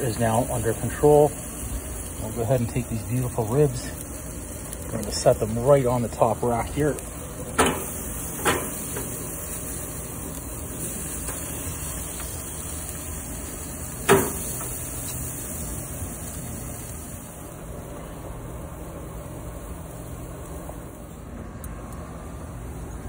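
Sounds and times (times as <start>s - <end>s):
grill hissing: 0.0s - 23.0s
light knocks on grill grate: 7.5s - 9.2s, 14.0s - 14.8s
metal clank: 7.5s - 9.2s, 14.0s - 14.7s.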